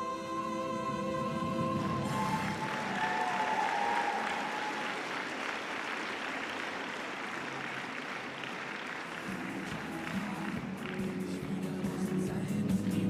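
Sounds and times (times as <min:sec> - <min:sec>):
music: 0:00.0 - 0:03.5, 0:09.1 - 0:13.0
audience applauding: 0:01.7 - 0:13.0.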